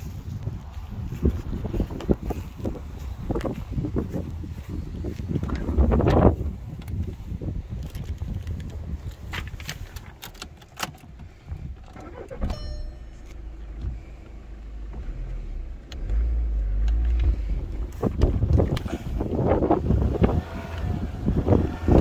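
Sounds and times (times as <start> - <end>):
ignition clicks: 7.7 - 22.0
diesel engine starting and idling: 11.3 - 22.0
key jingling: 11.9 - 13.8
engine revving: 12.0 - 22.0.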